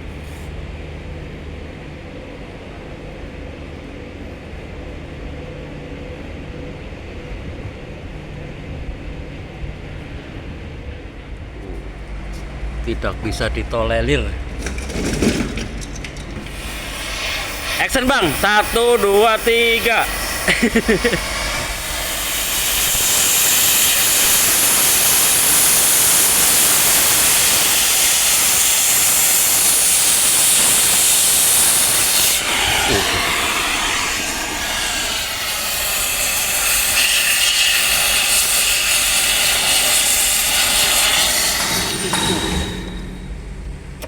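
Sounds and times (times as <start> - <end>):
hiss of rushing air: 15.6 - 43.4.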